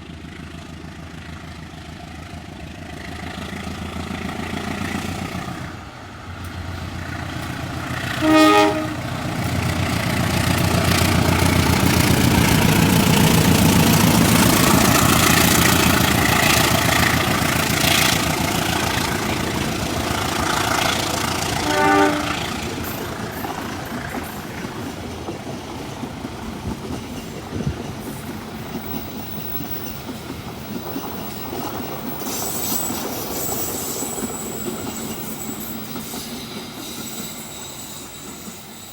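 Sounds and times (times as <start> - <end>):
clatter of train wheels: 0.0 - 38.9
train rumbling past: 0.0 - 38.9
train horn blasts: 8.0 - 9.4, 21.4 - 22.6.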